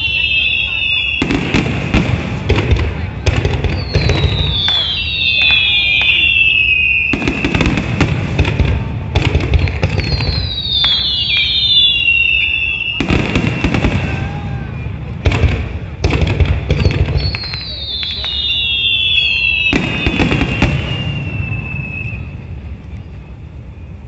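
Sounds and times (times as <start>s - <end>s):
firework whistles sliding down: 0.0s - 1.3s, 3.7s - 8.1s, 9.6s - 15.2s, 16.8s - 24.0s
fireworks bangs and crackling: 0.0s - 24.0s.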